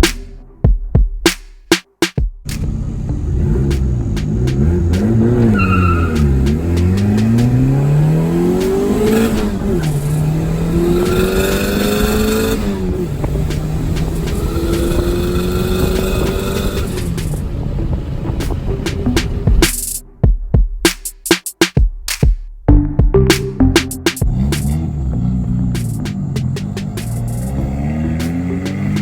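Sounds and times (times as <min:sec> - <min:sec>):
car engine revving: 0:02.5 - 0:20.0, 0:24.1 - 0:29.0.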